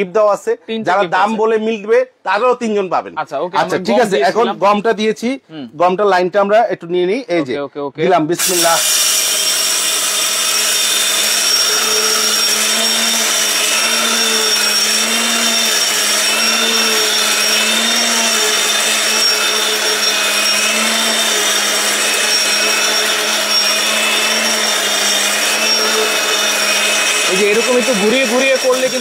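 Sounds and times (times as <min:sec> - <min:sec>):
mixer grinder motor milling grain: 0:08.4 - 0:29.0.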